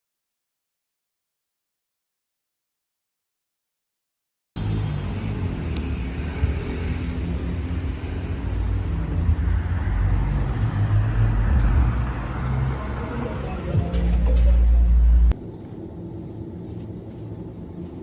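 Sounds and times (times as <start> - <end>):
street traffic rumble: 4.6 - 18.0.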